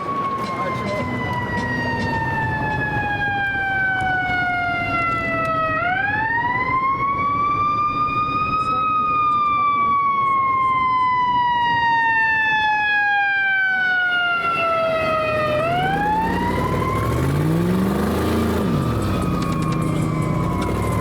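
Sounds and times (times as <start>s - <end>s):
siren wailing: 0.0s - 21.0s
vehicle engine revving: 14.6s - 21.0s.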